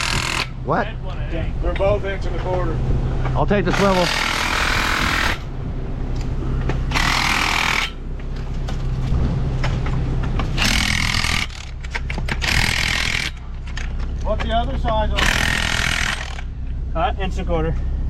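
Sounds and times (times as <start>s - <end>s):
impact wrench bursts: 0.0s - 0.6s, 3.7s - 5.5s, 6.9s - 8.0s, 10.6s - 13.5s, 15.1s - 16.5s
idling engine hum: 0.0s - 18.0s.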